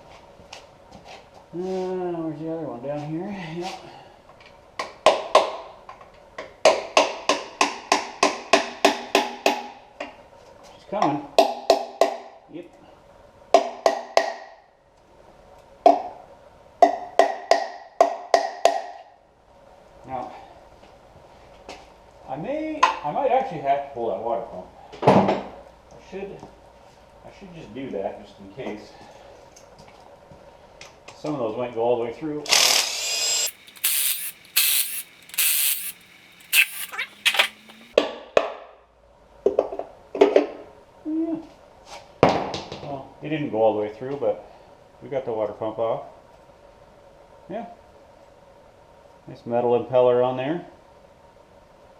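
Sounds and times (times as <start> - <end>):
power tool running: 32.5 - 38.0.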